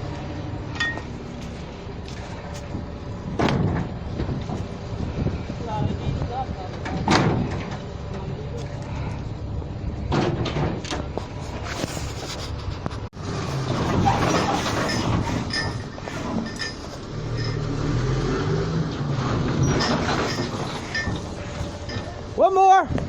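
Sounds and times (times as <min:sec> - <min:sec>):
vehicle engine rumbling: 0:00.0 - 0:23.0
clattering: 0:13.5 - 0:18.1, 0:19.3 - 0:22.3.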